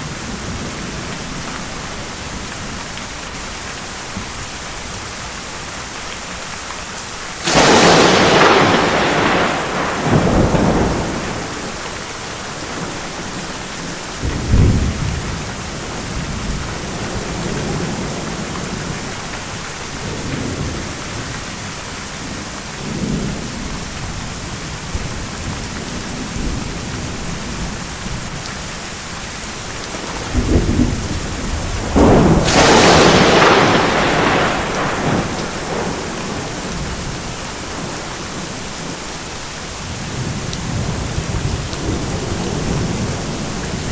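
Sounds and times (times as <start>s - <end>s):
heavy rain: 0.0s - 43.9s
loud close thunderclap: 7.4s - 13.4s, 14.2s - 19.1s, 29.9s - 38.0s
thunder rolling: 7.4s - 13.5s, 29.9s - 39.0s.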